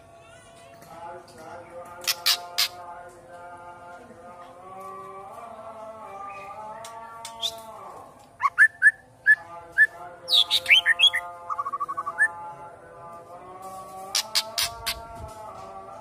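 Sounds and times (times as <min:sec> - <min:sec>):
bird trill: 0:02.1 - 0:02.8, 0:10.3 - 0:12.3, 0:14.2 - 0:15.0
songbird whistled chirps: 0:10.3 - 0:12.3.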